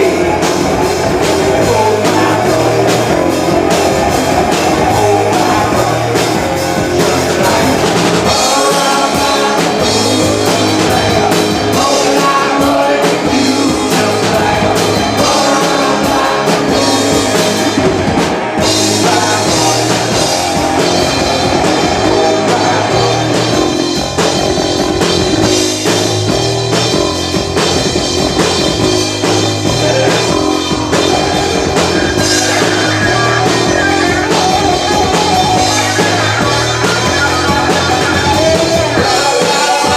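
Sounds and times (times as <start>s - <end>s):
person singing: 0.0s - 18.0s, 18.6s - 24.3s, 29.2s - 39.9s
drum kit: 0.0s - 39.9s
electric guitar: 0.0s - 39.9s.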